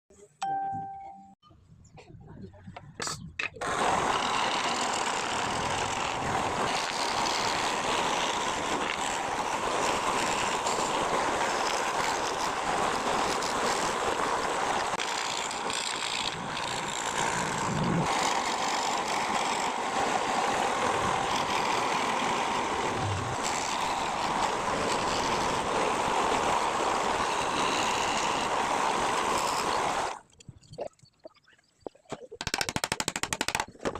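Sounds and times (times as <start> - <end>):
woodworking power tool running: 3.6 - 30.2.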